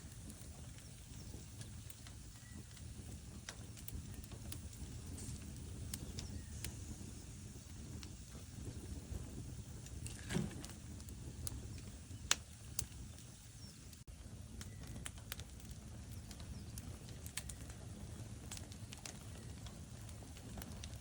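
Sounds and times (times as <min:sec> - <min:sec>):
fire crackles and pops: 0:00.0 - 0:21.0
low rumble of flames: 0:00.0 - 0:21.0.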